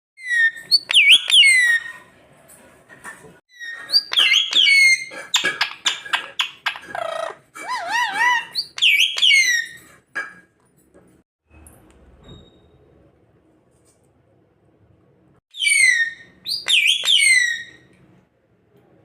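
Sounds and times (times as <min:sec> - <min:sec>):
parrot squawking and calling: 0:00.2 - 0:02.1, 0:03.6 - 0:09.9, 0:15.6 - 0:17.8.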